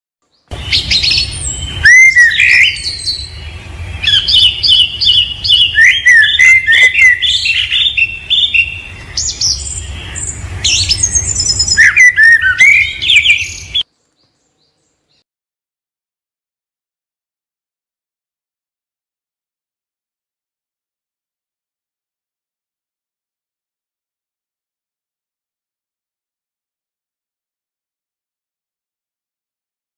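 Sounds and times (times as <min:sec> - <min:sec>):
birds chirping and trilling: 0:00.2 - 0:15.2
steady low rumble: 0:00.5 - 0:13.8.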